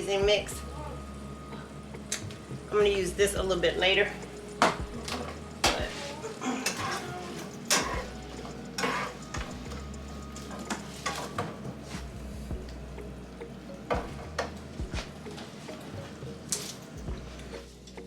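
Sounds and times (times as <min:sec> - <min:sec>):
utensil stirring and knocking pan: 0:03.4 - 0:12.9.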